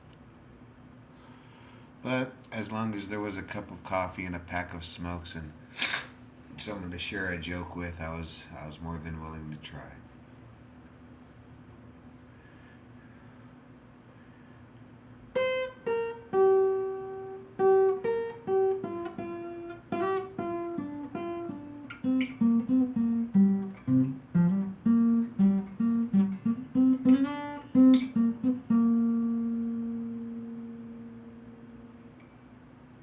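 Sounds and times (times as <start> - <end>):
acoustic guitar picked melody: 15.2 - 33.0
strummed guitar chords: 15.3 - 32.3.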